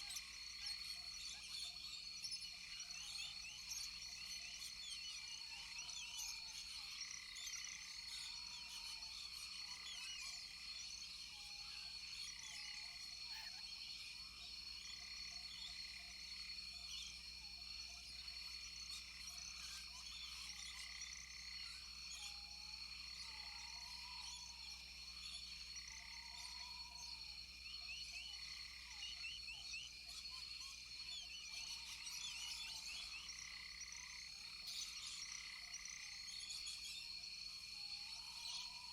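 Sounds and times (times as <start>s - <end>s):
frogs chirping: 0.0s - 38.9s
insects droning: 0.0s - 38.9s.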